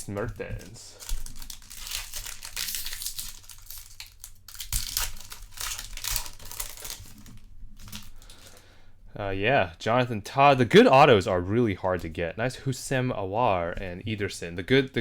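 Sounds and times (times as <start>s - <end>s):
foil wrapper crinkling: 0.0s - 8.6s.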